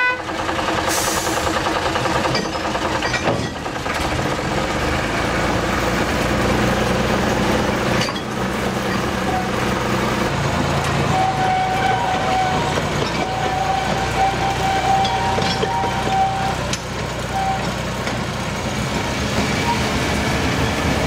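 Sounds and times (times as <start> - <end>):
diesel locomotive engine drone: 0.0 - 21.0
rail noise: 0.0 - 21.0.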